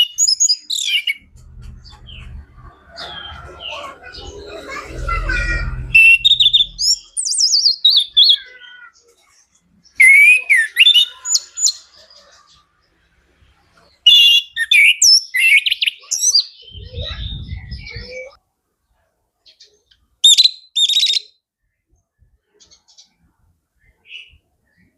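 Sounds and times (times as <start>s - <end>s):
low rumble: 1.1s - 7.2s, 16.8s - 18.1s
thrush singing whistles and trills: 5.9s - 8.4s, 9.9s - 11.9s, 14.1s - 18.4s, 20.3s - 21.3s.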